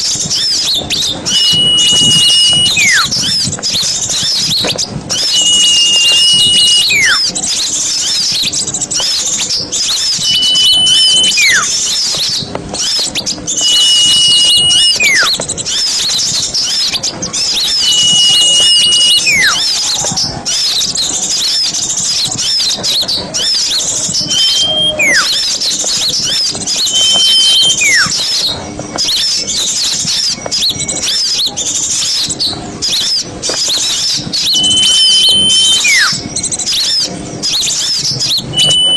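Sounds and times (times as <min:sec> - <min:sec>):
small birds twittering: 0:00.0 - 0:38.9
high falling whistle: 0:01.3 - 0:03.2, 0:05.1 - 0:07.3, 0:10.1 - 0:11.8, 0:13.6 - 0:15.4, 0:17.5 - 0:19.7, 0:24.2 - 0:25.5, 0:26.8 - 0:28.2, 0:34.4 - 0:36.2, 0:38.3 - 0:38.9.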